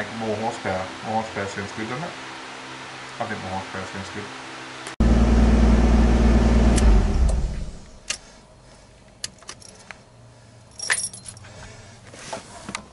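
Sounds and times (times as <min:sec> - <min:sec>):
car engine running: 0:05.0 - 0:08.0
keys jingling: 0:09.2 - 0:09.9, 0:10.7 - 0:11.5.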